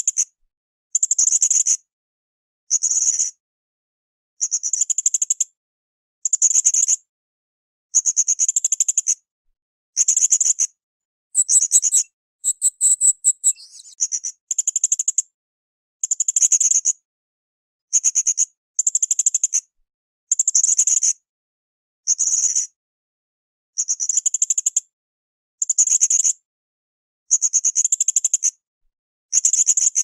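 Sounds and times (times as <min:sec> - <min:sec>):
parrot shrill twittering calls: 0:11.4 - 0:14.0.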